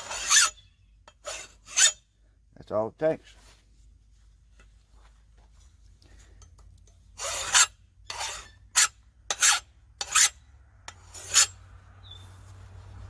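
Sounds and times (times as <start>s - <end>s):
file rasping on steel blade: 0.0s - 2.0s, 7.2s - 11.6s.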